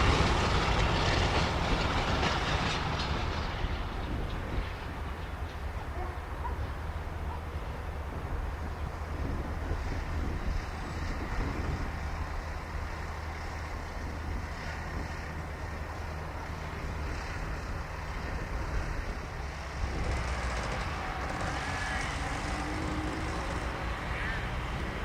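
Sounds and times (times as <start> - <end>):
diesel locomotive rumble: 0.0 - 25.0.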